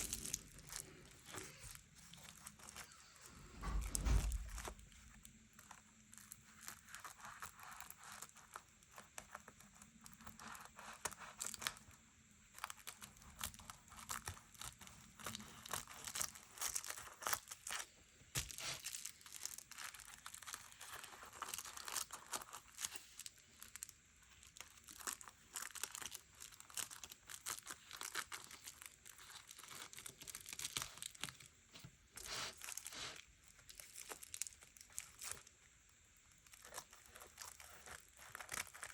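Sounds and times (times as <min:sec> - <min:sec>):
paper rustling and tearing: 0:00.0 - 0:05.0, 0:18.4 - 0:23.3, 0:32.2 - 0:34.4.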